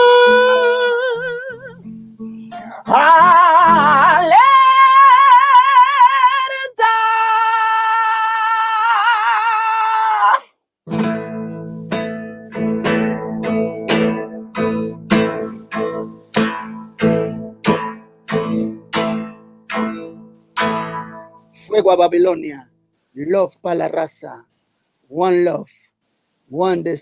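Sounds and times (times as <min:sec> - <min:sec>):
guitar strummed chords: 0:00.0 - 0:05.2, 0:10.9 - 0:21.8.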